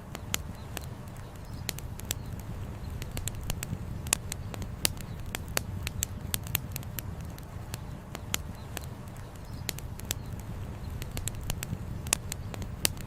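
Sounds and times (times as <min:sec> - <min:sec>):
wood fire crackling: 0:00.0 - 0:13.0
low rumble: 0:01.8 - 0:08.7.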